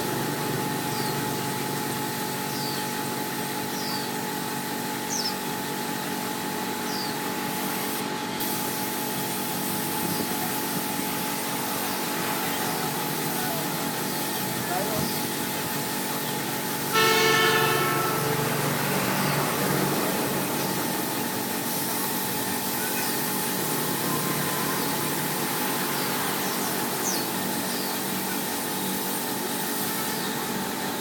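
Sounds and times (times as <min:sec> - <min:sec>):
air spray gun hissing: 0:07.3 - 0:25.8, 0:26.4 - 0:30.4
loud horn-like tone: 0:16.4 - 0:21.8.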